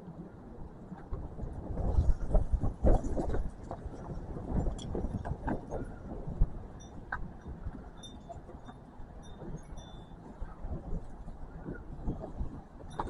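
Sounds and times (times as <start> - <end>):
wind gusting across microphone: 0.0 - 13.0.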